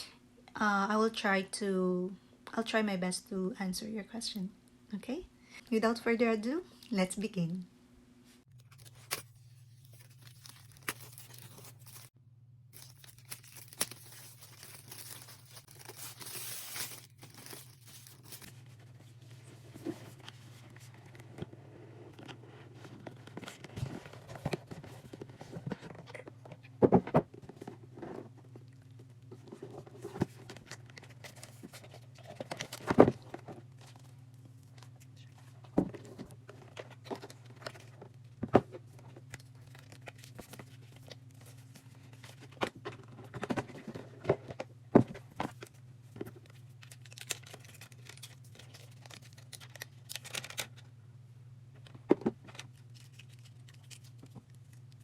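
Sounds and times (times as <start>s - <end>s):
packaging tearing and crinkling: 8.6s - 12.2s, 12.8s - 18.5s, 46.8s - 50.8s, 52.6s - 55.0s.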